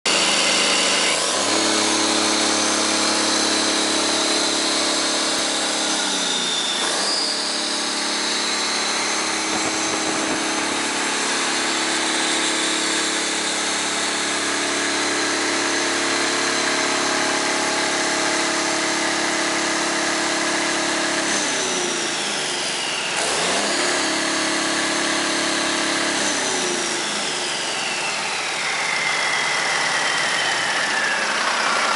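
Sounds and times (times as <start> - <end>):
high whine: 0.1 - 21.2
diesel truck engine running: 0.1 - 22.3.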